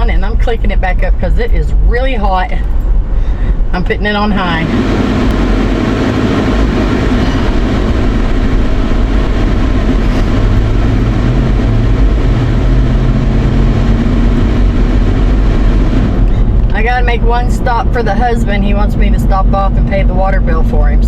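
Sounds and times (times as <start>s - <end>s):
car engine drone and road noise: 0.0s - 21.0s
air-conditioning blower rushing: 4.4s - 16.8s.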